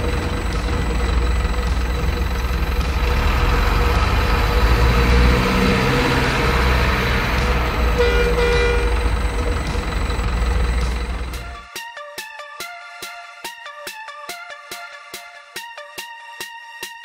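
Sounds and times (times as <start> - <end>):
heavy truck engine rumbling: 0.0 - 11.7.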